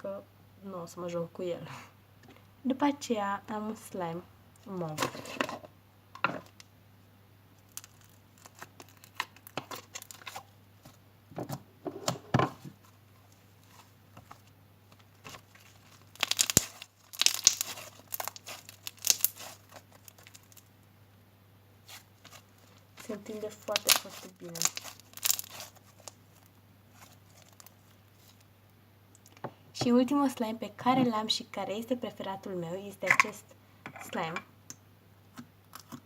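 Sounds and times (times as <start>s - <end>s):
slime crackling and popping: 7.6s - 10.5s, 13.7s - 20.7s, 21.8s - 28.5s.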